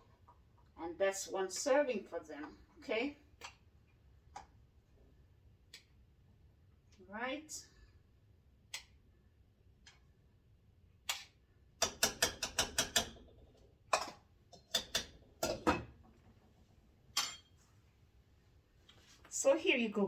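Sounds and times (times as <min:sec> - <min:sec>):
utensil tapping a pot: 0:11.8 - 0:13.3, 0:13.9 - 0:15.9.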